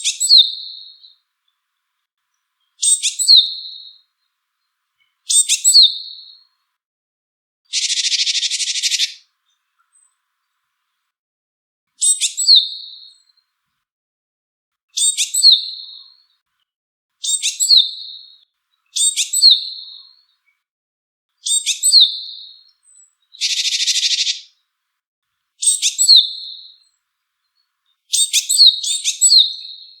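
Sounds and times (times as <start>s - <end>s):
bird calling: 7.7s - 9.2s, 23.4s - 24.5s
harsh buzzing bird call: 7.7s - 9.2s.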